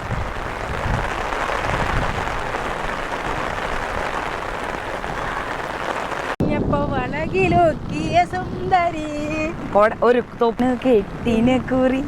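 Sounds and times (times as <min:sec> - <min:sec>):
rain falling: 0:00.0 - 0:06.4, 0:07.2 - 0:12.0
low rumbling: 0:06.4 - 0:12.0.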